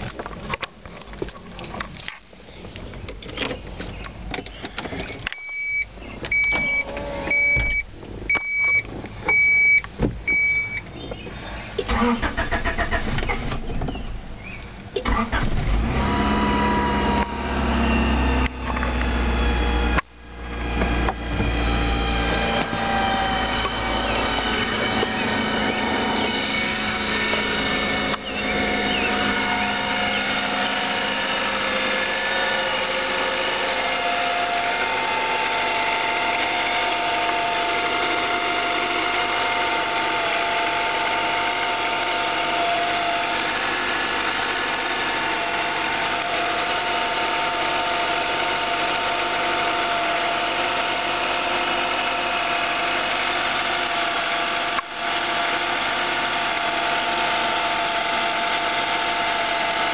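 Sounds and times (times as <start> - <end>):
car engine running: 5.9 - 59.9
high-pitched whine: 16.1 - 45.4.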